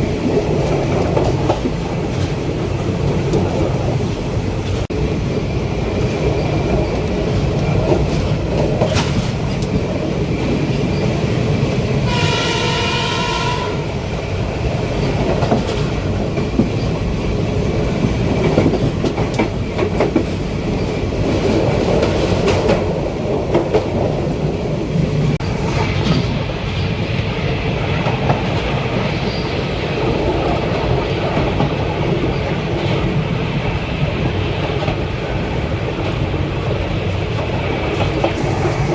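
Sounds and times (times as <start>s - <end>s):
train wheels clicking on rails: 0.0s - 38.9s
train horn blast: 12.0s - 14.1s.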